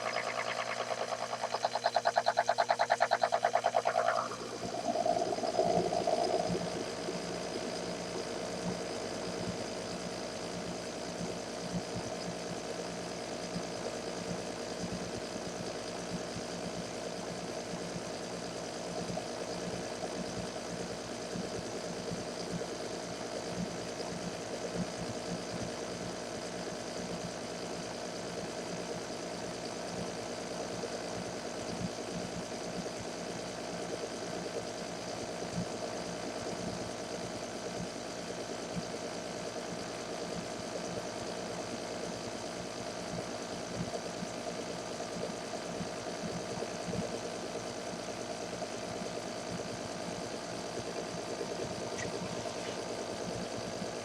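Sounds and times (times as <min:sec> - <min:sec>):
lathe motor humming and whining: 0:00.0 - 0:07.9.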